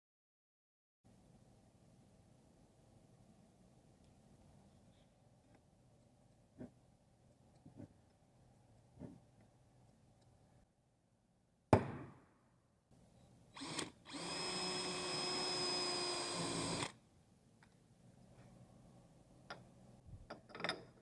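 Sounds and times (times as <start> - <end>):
sharp knock: 11.7 - 12.2
small machine whining: 13.6 - 17.0.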